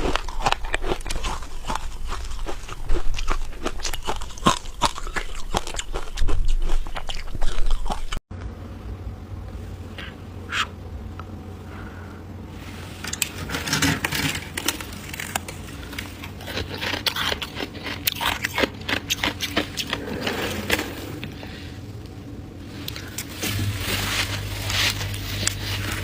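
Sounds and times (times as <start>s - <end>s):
freezer frost crunching: 0.0s - 8.2s, 12.6s - 21.8s, 22.6s - 26.0s
steady low hum: 0.0s - 26.0s.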